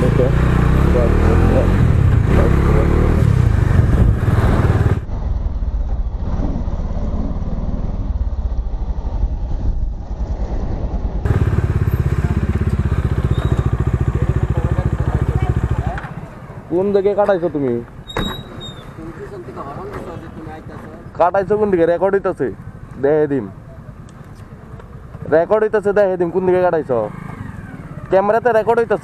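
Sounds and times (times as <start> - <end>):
motorcycle engine running: 0.0 - 16.9
road and wind noise: 0.0 - 29.0.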